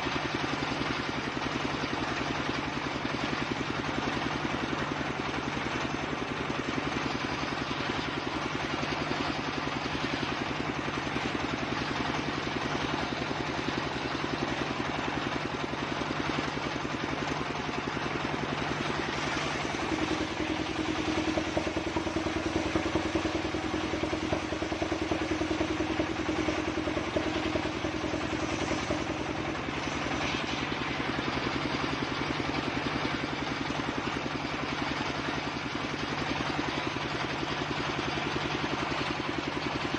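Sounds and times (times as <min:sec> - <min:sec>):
engine-driven circular saw running: 0:00.0 - 0:39.9
steady hum: 0:18.3 - 0:31.4.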